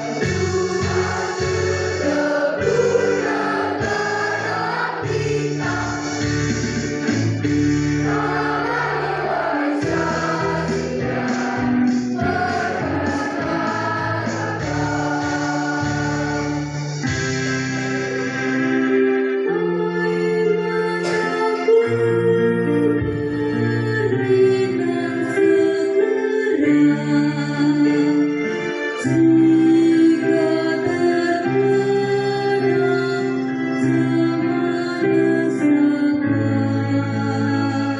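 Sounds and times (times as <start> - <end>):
choir singing: 0.0 - 6.8, 7.9 - 16.9.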